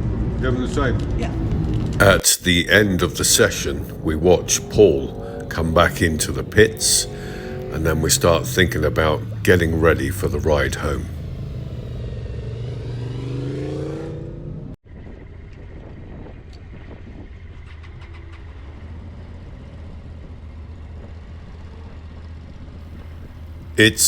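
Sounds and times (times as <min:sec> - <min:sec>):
motorcycle engine running: 0:01.4 - 0:02.1, 0:02.7 - 0:12.0.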